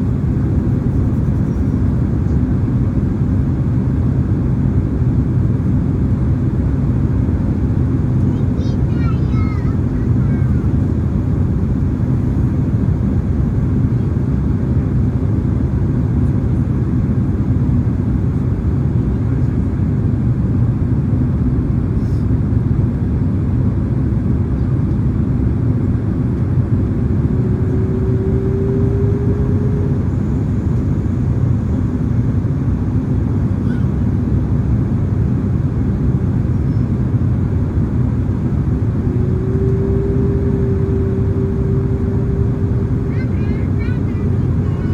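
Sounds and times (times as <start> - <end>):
jet engine cabin rumble: 0.0 - 44.9
faint rising tone: 38.8 - 43.1.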